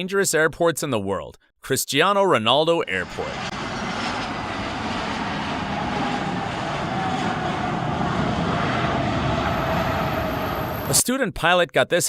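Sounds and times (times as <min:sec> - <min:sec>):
aircraft engines running: 0:02.8 - 0:11.0.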